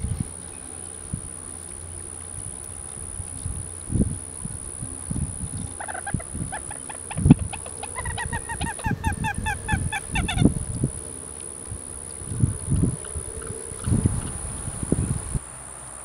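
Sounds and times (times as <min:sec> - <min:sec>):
bird calling repeated notes: 0:00.0 - 0:12.1
high-pitched insect whine: 0:00.0 - 0:16.0.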